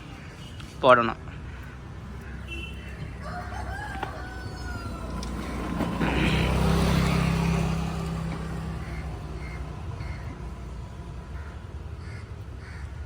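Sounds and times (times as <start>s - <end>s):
low traffic rumble: 0.0s - 13.0s
vehicle passing by: 1.7s - 12.0s.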